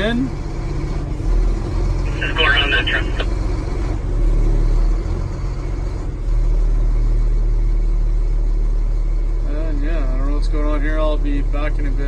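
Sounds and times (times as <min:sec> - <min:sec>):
truck engine drone: 0:00.0 - 0:09.5.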